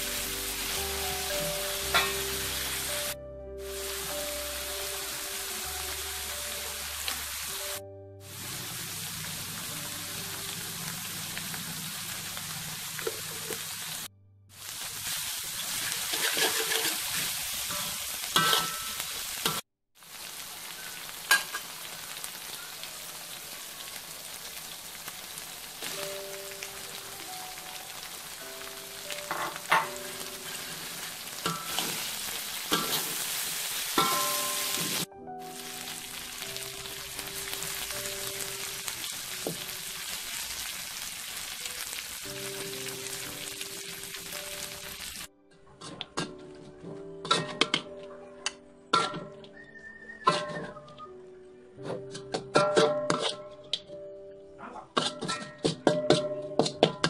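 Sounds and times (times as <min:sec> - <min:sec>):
sauce sizzling in a wok: 0:00.0 - 0:45.3
metal spatula scraping a pan: 0:15.6 - 0:19.6, 0:29.2 - 0:35.0, 0:51.8 - 0:53.6, 0:54.9 - 0:57.0.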